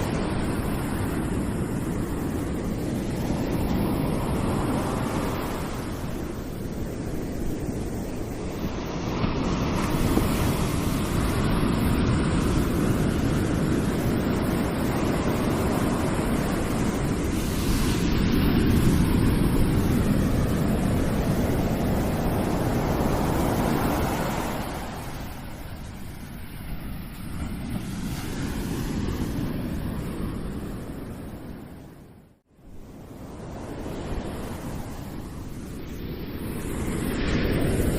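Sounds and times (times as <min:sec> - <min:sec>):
ocean waves breaking: 0:00.0 - 0:37.9.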